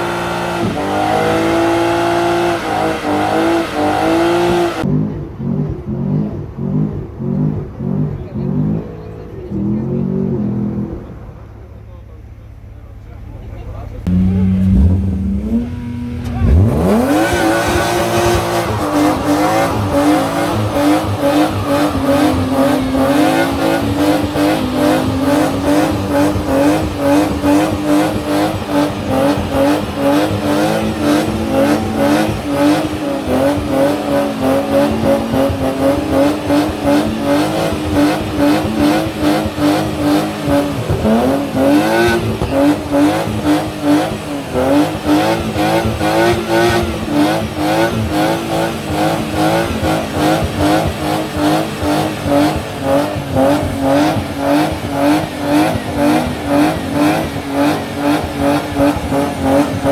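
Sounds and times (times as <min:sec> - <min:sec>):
car engine revving: 0:00.0 - 0:59.9
tyres squealing: 0:14.0 - 0:59.9.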